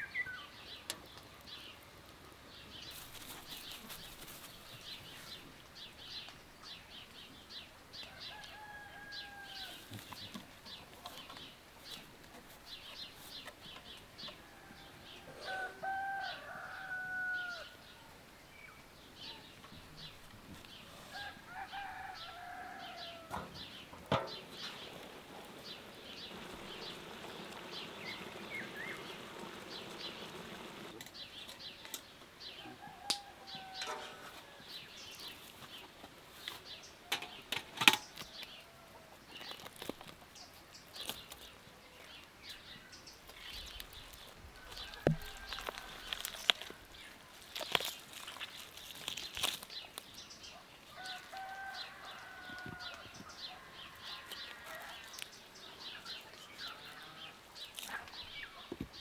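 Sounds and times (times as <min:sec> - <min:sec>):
bird calls: 0:20.8 - 0:35.4
sharp clicks and knocks: 0:23.3 - 0:25.1.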